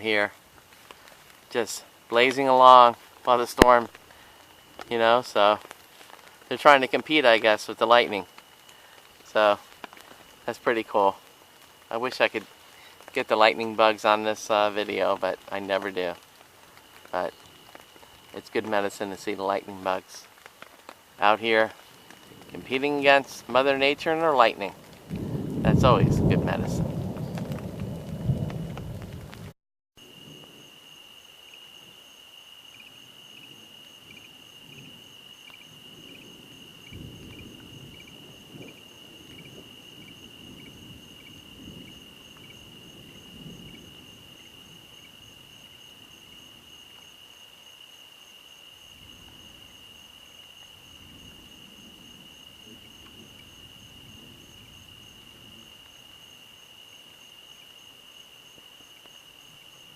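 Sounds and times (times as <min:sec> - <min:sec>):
insect chirps: 0:00.0 - 0:29.4, 0:30.0 - 0:59.9
night insects trilling: 0:00.0 - 0:29.4, 0:30.0 - 0:59.9
rain: 0:00.0 - 0:59.9
faint low rumbles: 0:21.2 - 0:29.5
thunder: 0:24.7 - 0:29.5, 0:35.8 - 0:44.9.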